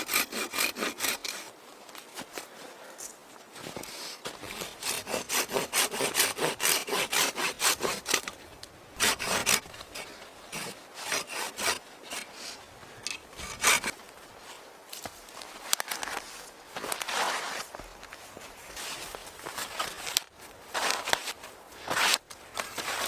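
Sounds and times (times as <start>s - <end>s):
hand saw cutting wood: 0.0s - 1.5s, 4.3s - 8.4s, 9.0s - 14.0s.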